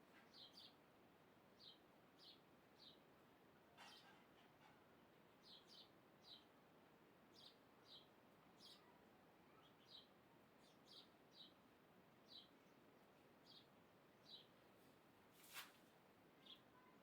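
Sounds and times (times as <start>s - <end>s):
faint background hiss: 0.0s - 17.0s
small bird chirping: 7.4s - 8.9s, 9.5s - 11.6s, 16.4s - 16.9s.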